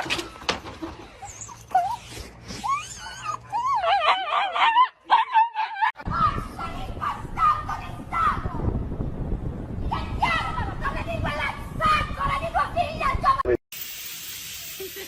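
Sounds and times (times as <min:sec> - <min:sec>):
dog whining: 0:01.0 - 0:05.9.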